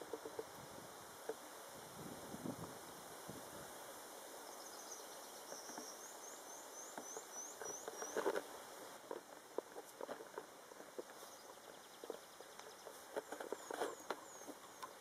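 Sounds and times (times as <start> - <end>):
soft knocks and rustles: 7.0 - 15.0.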